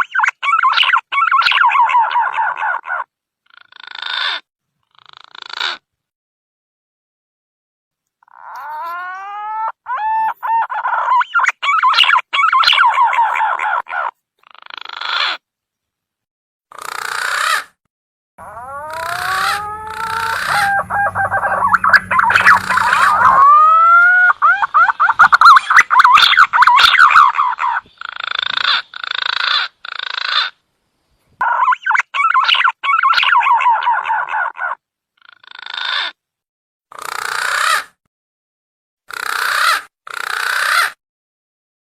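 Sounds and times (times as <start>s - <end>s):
pigeon warbling whistled calls: 0.0s - 2.9s, 8.6s - 14.1s, 18.4s - 28.8s, 31.4s - 34.7s
whistled bird lure calls: 18.9s - 23.6s.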